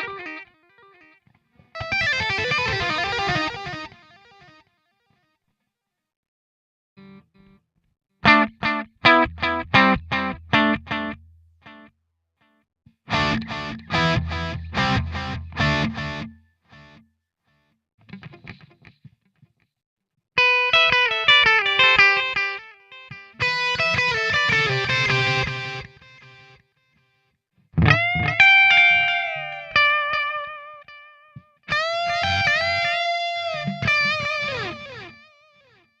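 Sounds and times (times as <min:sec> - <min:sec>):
overdriven electric guitar: 0:00.0 - 0:04.6, 0:08.2 - 0:11.9, 0:13.1 - 0:17.0, 0:18.1 - 0:19.1, 0:20.4 - 0:26.6, 0:27.8 - 0:35.9.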